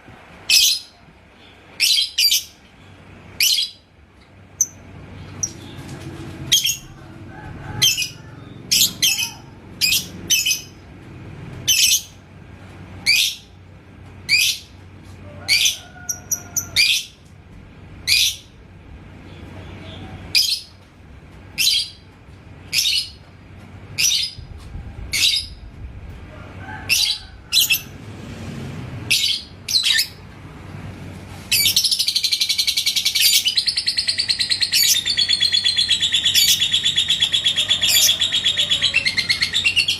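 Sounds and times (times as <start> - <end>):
lovebird chattering trill: 31.6 - 39.9
lovebird chirping: 31.6 - 39.9.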